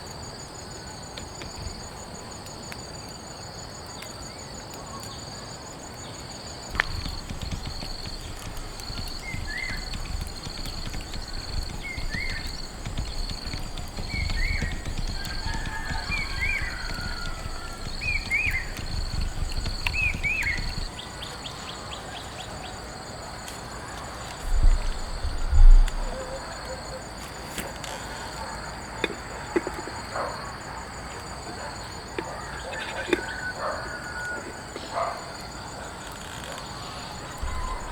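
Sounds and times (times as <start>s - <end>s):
insects chirping: 0.0s - 37.9s.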